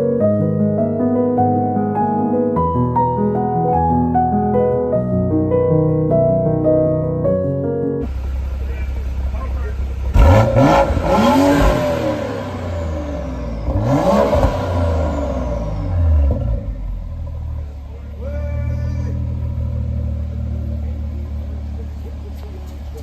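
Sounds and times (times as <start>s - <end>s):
car engine revving: 8.0s - 18.2s, 18.8s - 23.0s
car engine idling: 8.0s - 23.0s.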